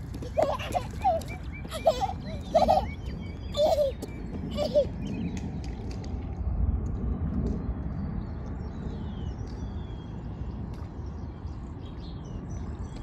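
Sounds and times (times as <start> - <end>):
birds chirping: 0.0 - 6.0
wind rumble on microphone: 0.0 - 13.0.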